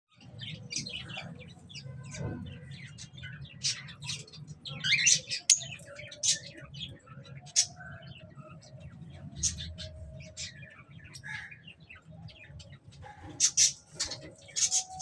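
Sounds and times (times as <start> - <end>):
birds chirping: 0.1 - 15.0.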